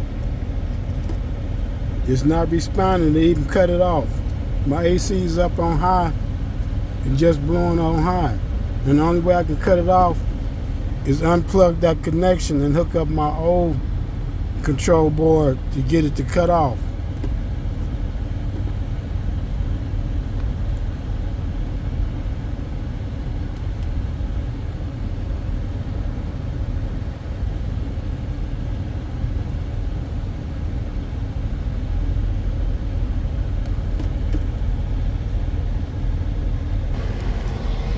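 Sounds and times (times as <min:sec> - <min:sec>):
car air blower rushing: 0:36.9 - 0:37.9.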